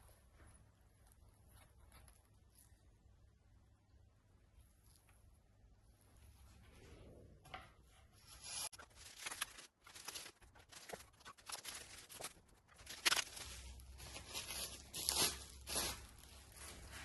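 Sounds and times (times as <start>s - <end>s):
packaging ripping and crinkling: 8.7s - 17.0s.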